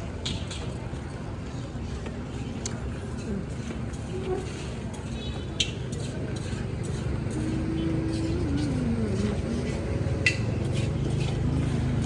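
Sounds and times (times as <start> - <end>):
low rumble of traffic: 0.0 - 12.0.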